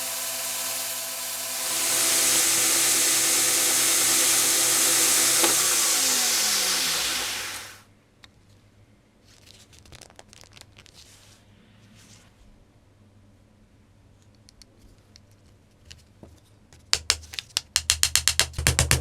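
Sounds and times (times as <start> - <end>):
power tool motor running: 0.0 - 7.8.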